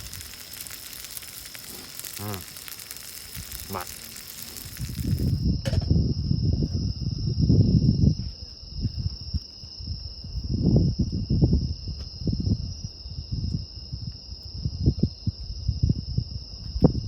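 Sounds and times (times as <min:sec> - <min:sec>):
insects chirring: 0:00.0 - 0:08.1.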